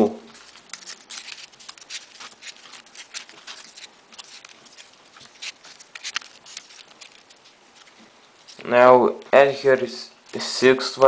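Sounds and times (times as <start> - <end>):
small paper clicks: 0.3 - 8.6
paper rustling: 0.3 - 8.7.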